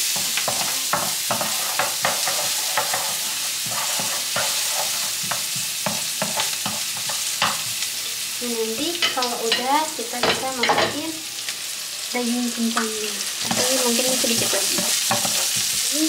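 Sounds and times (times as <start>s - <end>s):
onion sizzling in oil: 0.0s - 16.0s
wooden utensil scraping a pan: 0.1s - 7.7s, 13.4s - 15.9s.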